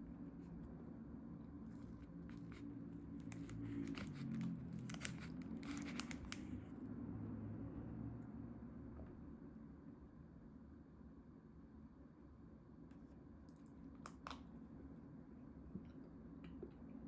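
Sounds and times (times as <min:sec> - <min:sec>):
plastic packaging tearing and crinkling: 0:02.3 - 0:06.6.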